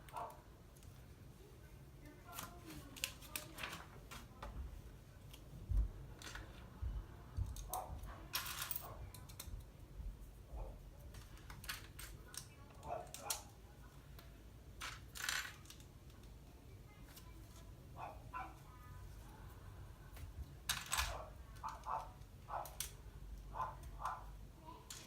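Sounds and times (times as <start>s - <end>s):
plastic bricks clicking and rattling: 14.8s - 16.3s.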